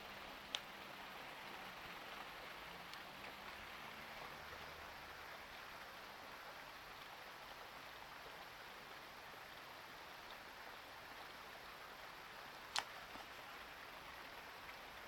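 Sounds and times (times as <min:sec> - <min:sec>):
steady faint hiss: 0:00.0 - 0:15.0
sharp click: 0:12.7 - 0:12.9.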